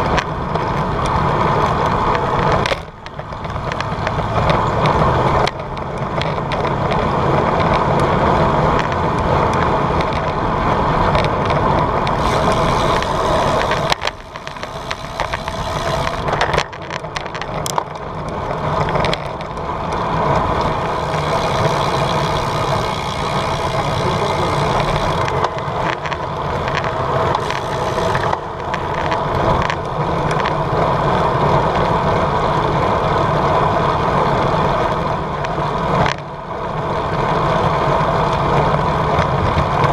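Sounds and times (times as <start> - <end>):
tyres rolling on road: 0.0 - 39.9
sharp clicks: 11.1 - 19.7, 20.6 - 30.5.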